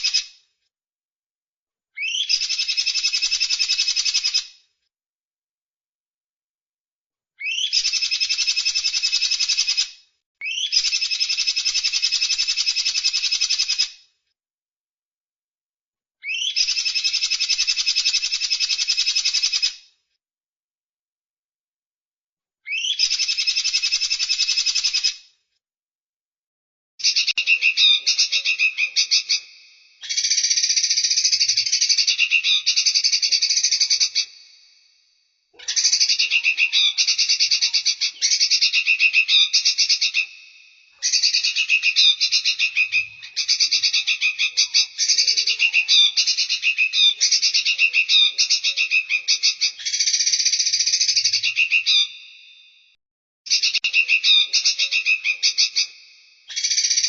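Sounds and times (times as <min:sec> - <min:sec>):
songbird trilling: 0:02.0 - 0:04.4, 0:07.4 - 0:09.8, 0:10.4 - 0:13.5, 0:16.2 - 0:19.4, 0:22.7 - 0:25.1, 0:27.0 - 0:34.6, 0:35.6 - 0:52.4, 0:53.5 - 0:57.0.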